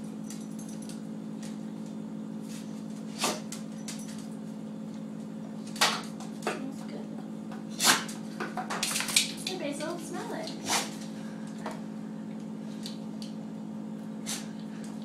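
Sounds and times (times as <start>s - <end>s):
steady low hum: 0.0s - 15.0s
dog sneezing: 7.7s - 8.1s, 10.6s - 11.0s, 14.2s - 14.5s.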